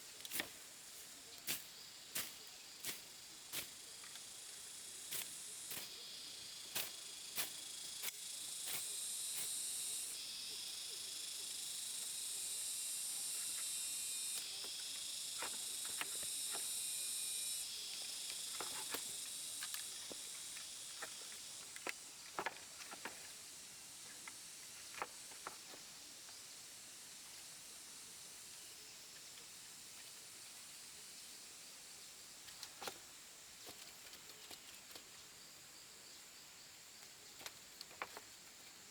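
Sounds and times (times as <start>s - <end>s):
high insect buzzing: 3.5s - 21.7s.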